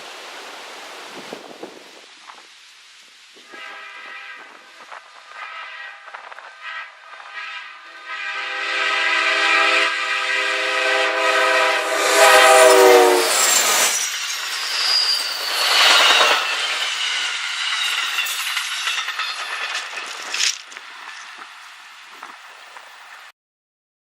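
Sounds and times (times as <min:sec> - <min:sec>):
train horn: 0:03.4 - 0:14.0
wheels squealing: 0:11.6 - 0:23.3
train wheels clattering over rails: 0:11.8 - 0:23.3.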